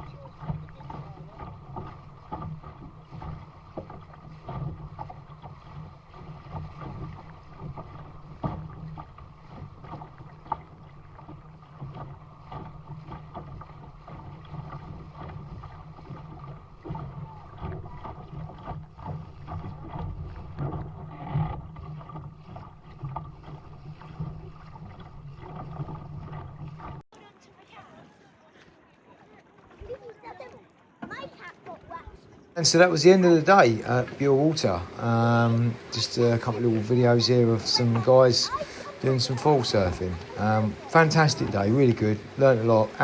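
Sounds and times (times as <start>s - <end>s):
water splashing along hull: 0.0s - 43.0s
wind buffeting microphone: 31.1s - 43.0s.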